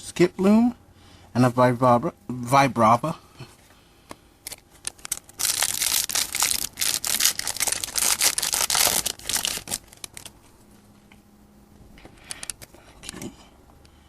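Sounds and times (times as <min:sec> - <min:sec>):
foil wrapper tearing and crinkling: 0:04.5 - 0:10.4.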